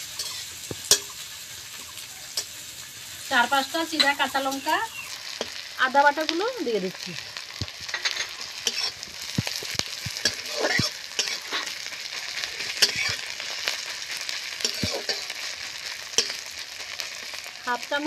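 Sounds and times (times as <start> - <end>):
metal spatula scraping a pan: 0.0 - 4.6, 7.8 - 17.6
food sizzling in hot oil: 0.0 - 18.0.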